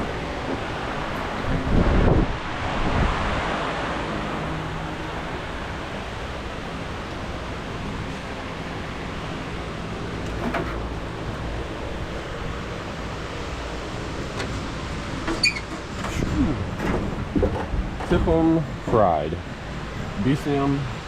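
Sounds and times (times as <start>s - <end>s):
wind on microphone: 0.9s - 3.8s.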